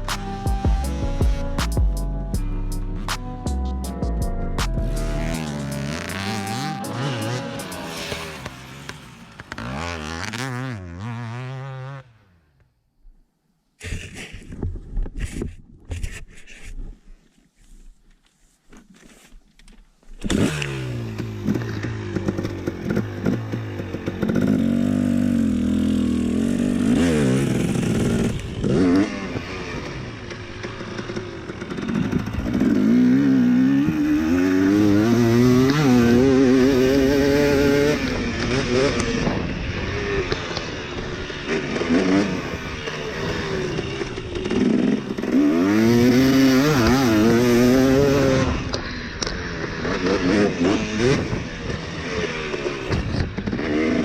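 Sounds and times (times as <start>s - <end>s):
dirt bike engine revving: 4.7s - 12.4s, 20.2s - 54.0s.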